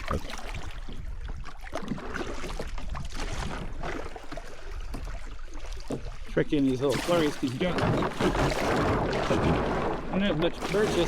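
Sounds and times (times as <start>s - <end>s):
kayak paddle strokes splashing: 0.0s - 11.0s
water rushing around hull: 0.0s - 11.0s.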